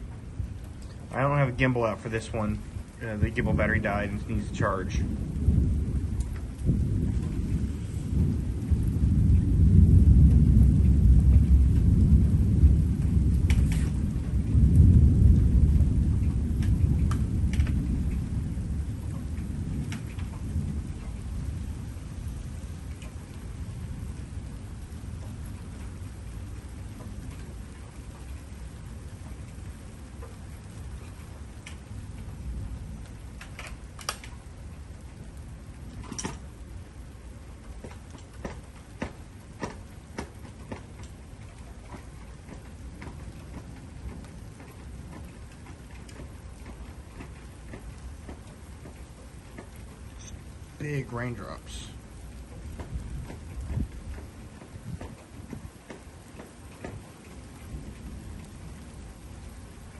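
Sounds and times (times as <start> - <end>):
low rumble: 0.0 - 27.4
raindrops ticking: 0.0 - 59.9
thunder rolling: 0.0 - 59.9.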